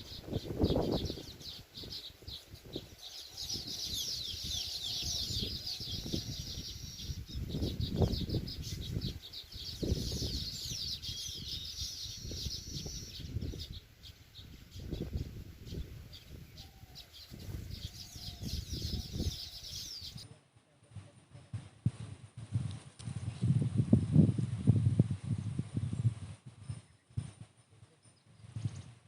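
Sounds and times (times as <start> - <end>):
birds chattering: 0.0 - 20.3.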